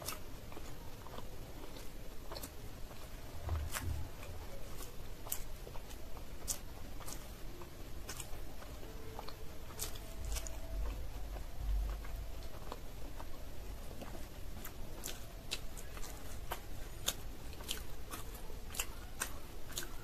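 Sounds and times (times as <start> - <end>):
wet mouth chewing clicks: 0.0 - 7.3, 14.0 - 20.0
low rumble: 3.2 - 4.9
low thud: 3.4 - 4.4.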